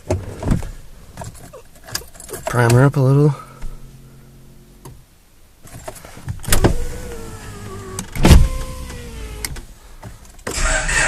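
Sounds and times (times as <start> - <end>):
electric fuel pump whining: 6.4 - 9.7.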